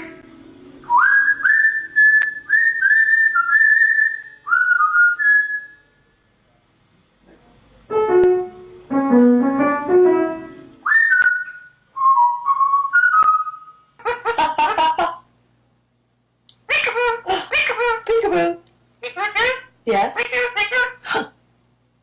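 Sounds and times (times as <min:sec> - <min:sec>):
bird whistling a tune: 0:00.8 - 0:05.9, 0:10.8 - 0:13.9
keyboard notes: 0:07.9 - 0:11.3.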